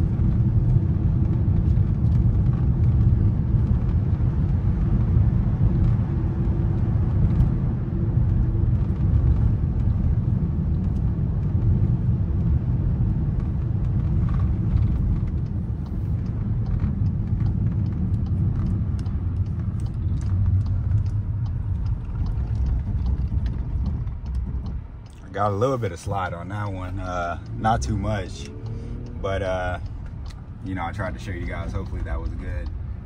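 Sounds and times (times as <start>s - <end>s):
car driving on snow rumble: 0.0s - 33.0s.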